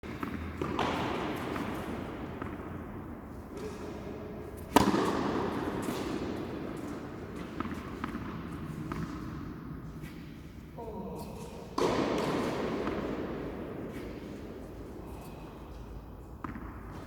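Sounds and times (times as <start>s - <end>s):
tennis ball struck by racket: 0.1s - 2.9s, 4.5s - 10.2s, 11.8s - 15.0s, 16.3s - 17.0s.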